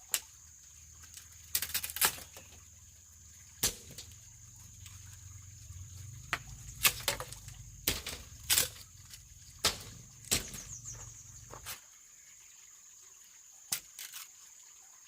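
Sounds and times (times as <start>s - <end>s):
sharp knocks or chops: 9.6s - 10.8s.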